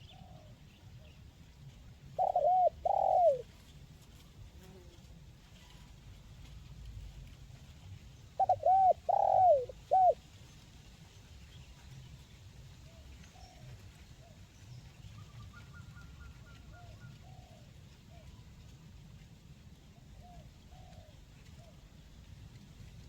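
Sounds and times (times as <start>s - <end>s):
dove cooing: 2.2s - 3.5s, 8.4s - 10.2s, 15.6s - 18.3s, 20.1s - 21.8s.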